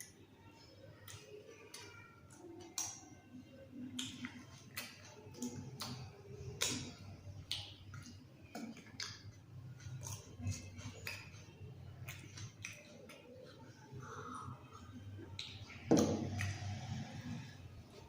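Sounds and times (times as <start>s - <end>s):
person chewing food: 3.9s - 18.0s.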